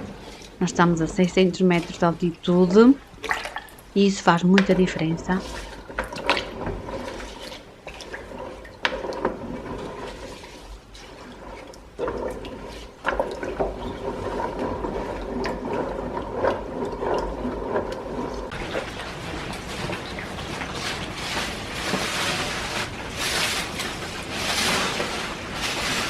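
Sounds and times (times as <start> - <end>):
water running and splashing: 2.7 - 4.0, 18.4 - 26.0.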